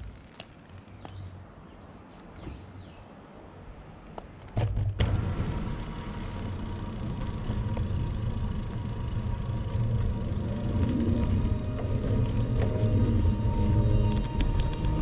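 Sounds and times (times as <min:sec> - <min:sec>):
faint birdsong: 0:00.0 - 0:03.7
wind and riding noise rumbling: 0:00.0 - 0:15.0.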